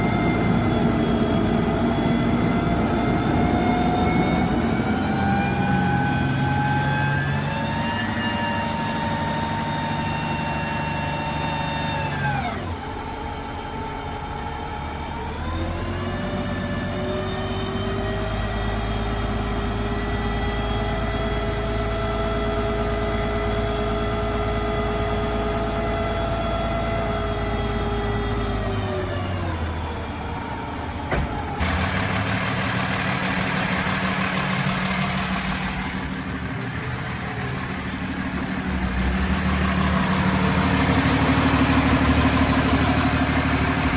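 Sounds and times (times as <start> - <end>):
diesel truck engine revving: 0.0 - 43.9.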